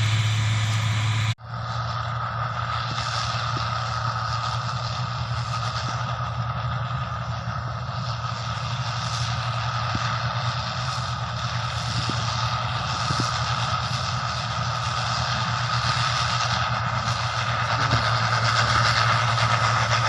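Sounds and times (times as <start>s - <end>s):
combine harvester engine hum: 0.0s - 20.0s
high-pitched machinery whine: 0.0s - 20.0s.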